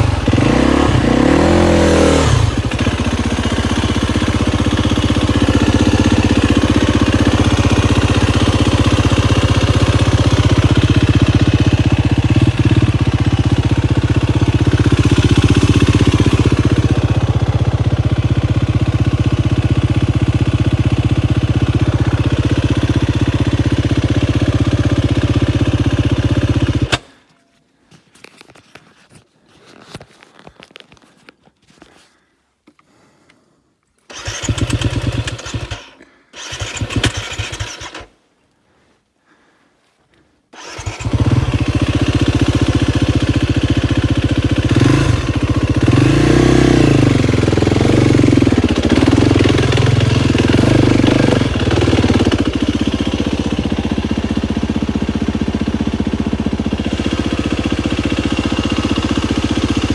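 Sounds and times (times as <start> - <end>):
dirt bike engine starting and revving: 0.0 - 27.2, 34.1 - 38.2, 40.6 - 59.9.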